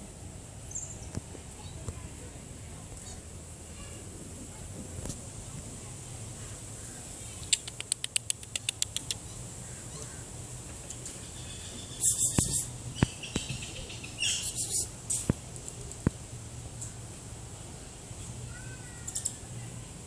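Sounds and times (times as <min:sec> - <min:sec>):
sharp clicks: 0:07.4 - 0:09.2
high-pitched animal chirping: 0:11.3 - 0:14.9.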